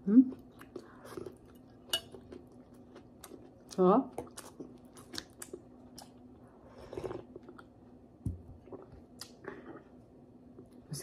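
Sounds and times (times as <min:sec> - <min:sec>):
person chewing: 0:00.3 - 0:07.8, 0:08.6 - 0:10.0.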